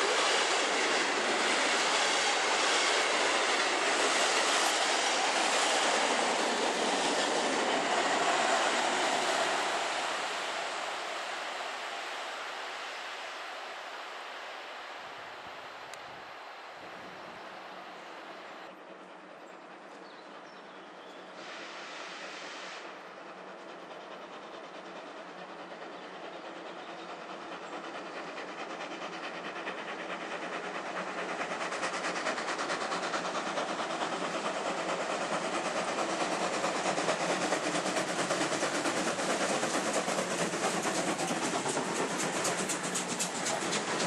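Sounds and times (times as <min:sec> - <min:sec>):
rhythmic train wheel clatter: 0:00.0 - 0:12.9, 0:22.8 - 0:44.0
steam train approaching: 0:00.0 - 0:44.0.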